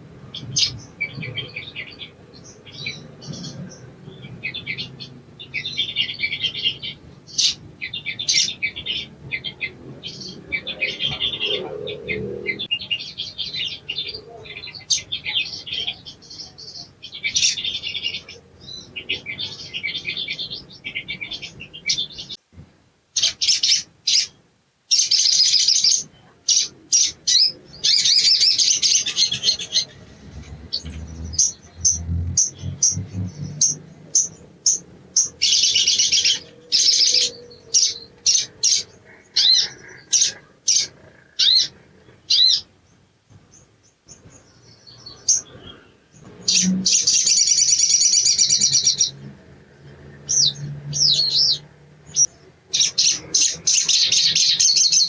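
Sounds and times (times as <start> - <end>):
sunbird twittering chirps: 24.9 - 55.0.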